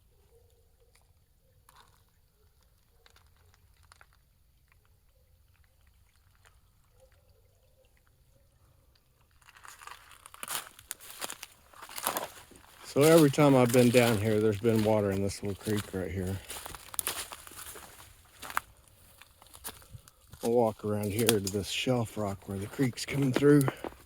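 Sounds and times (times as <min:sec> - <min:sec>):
creek trickling: 0:00.8 - 0:24.0
footsteps crunching dry leaves: 0:09.4 - 0:24.0.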